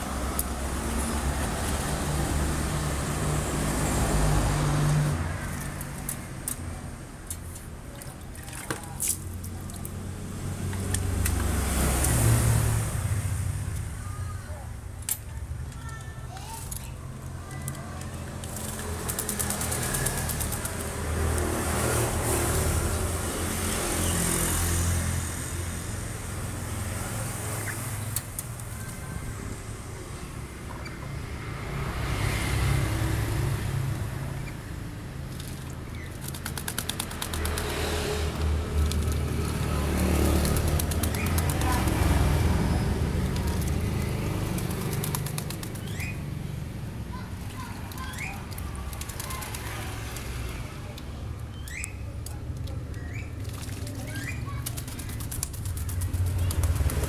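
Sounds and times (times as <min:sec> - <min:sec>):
parrot flapping wings: 0:18.3 - 0:22.0, 0:35.3 - 0:46.2, 0:47.5 - 0:50.5, 0:53.3 - 0:57.0.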